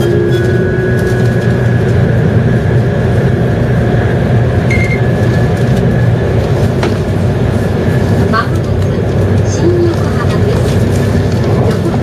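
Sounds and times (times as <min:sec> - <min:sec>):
brief high tone: 0:00.0 - 0:01.2
train cabin rumble: 0:00.0 - 0:12.0.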